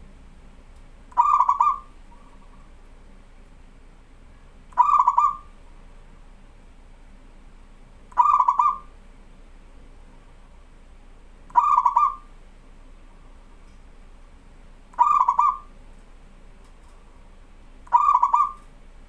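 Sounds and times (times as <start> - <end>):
dove cooing: 1.1 - 2.8, 4.7 - 5.8, 8.1 - 9.0, 11.5 - 12.3, 14.9 - 15.8, 17.8 - 18.7.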